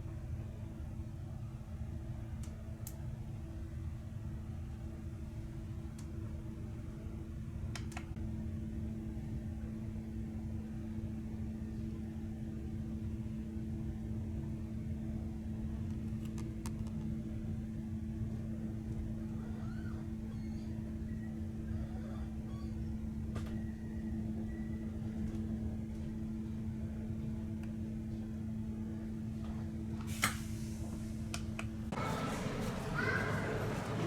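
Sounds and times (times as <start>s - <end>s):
train wheels rumbling: 30.1s - 34.0s.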